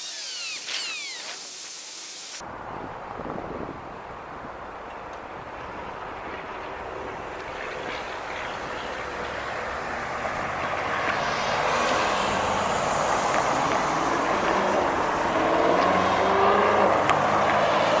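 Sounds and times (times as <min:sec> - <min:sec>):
motor vehicle approaching: 0:02.8 - 0:18.0.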